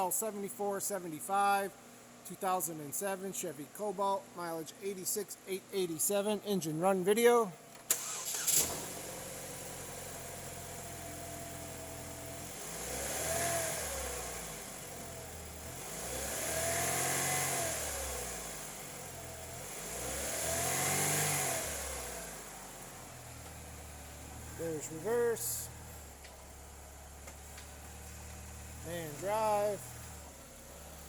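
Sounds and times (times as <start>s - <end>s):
car engine idling: 7.9s - 16.3s, 21.7s - 31.0s
car engine starting: 7.9s - 31.0s
car engine revving: 12.3s - 25.1s.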